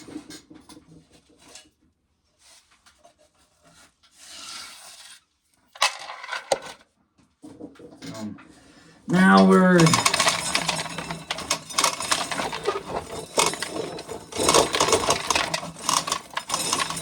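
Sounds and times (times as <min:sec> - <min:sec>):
sharp clatters: 0:09.1 - 0:17.0.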